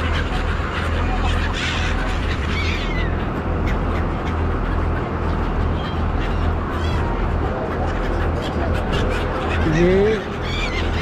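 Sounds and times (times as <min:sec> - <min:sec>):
ferry engine drone: 0:00.0 - 0:11.0
gulls calling: 0:00.0 - 0:11.0.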